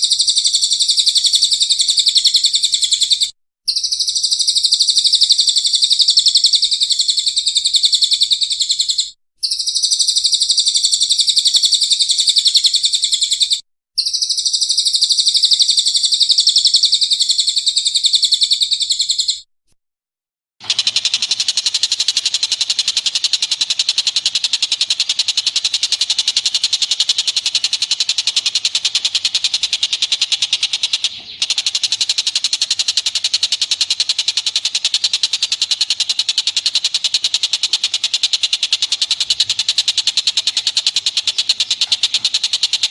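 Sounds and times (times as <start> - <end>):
songbird singing: 0.0 - 19.5, 22.3 - 42.9.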